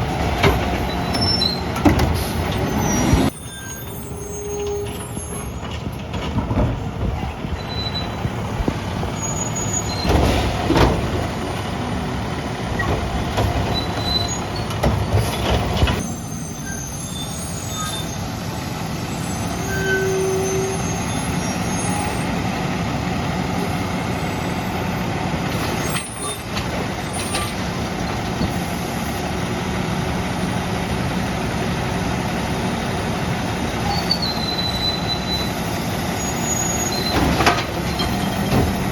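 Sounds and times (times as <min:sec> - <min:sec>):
garbage truck running: 0:00.0 - 0:38.9
loud knocks and clanks: 0:05.6 - 0:07.2, 0:09.9 - 0:11.4, 0:37.1 - 0:38.9.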